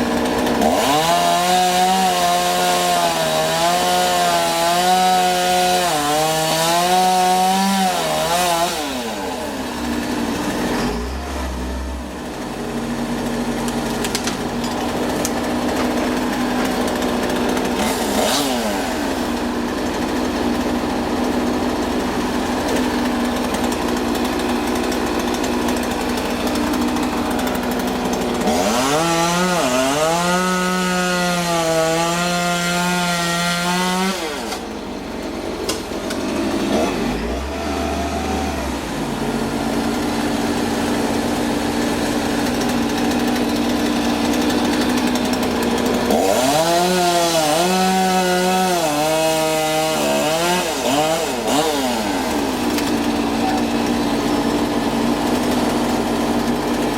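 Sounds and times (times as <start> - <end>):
chainsaw revving: 0.0 - 56.9
engine droning: 8.0 - 31.4.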